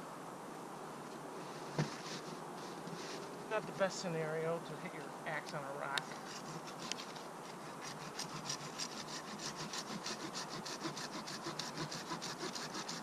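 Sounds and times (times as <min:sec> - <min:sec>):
hand saw cutting wood: 0:06.1 - 0:13.0.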